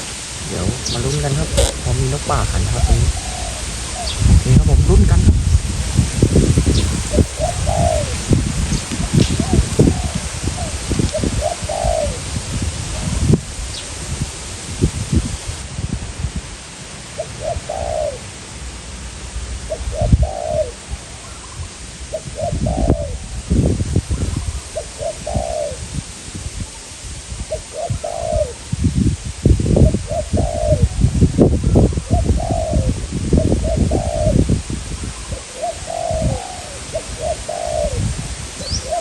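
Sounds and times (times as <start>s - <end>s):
doves cooing: 0.0s - 4.6s, 6.0s - 15.6s, 17.2s - 18.2s, 19.7s - 21.4s, 24.8s - 25.8s, 27.6s - 28.6s, 32.1s - 34.4s, 35.1s - 39.0s
wind buffeting microphone: 0.0s - 18.2s, 19.4s - 39.0s.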